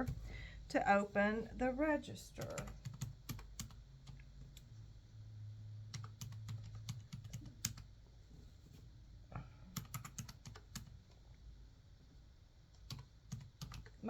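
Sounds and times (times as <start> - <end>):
faint low hum: 0.0 - 14.0
typing on computer keyboard: 2.4 - 4.7, 5.9 - 7.9, 9.7 - 11.0, 12.8 - 14.0.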